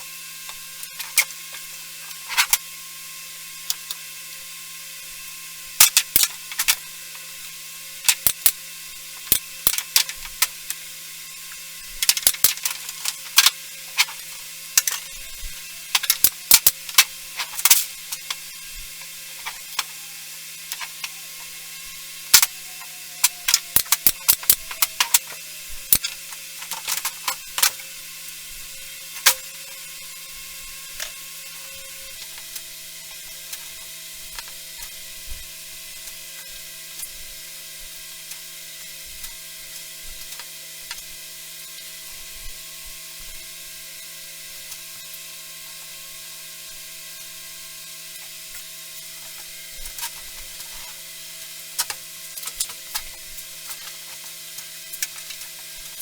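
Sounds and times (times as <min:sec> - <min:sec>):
tools and parts clicking: 0:00.5 - 0:02.7, 0:03.7 - 0:04.0, 0:05.8 - 0:10.8, 0:11.5 - 0:27.9, 0:29.2 - 0:29.9, 0:51.8 - 0:56.0
steady hiss and hum: 0:05.6 - 0:29.5.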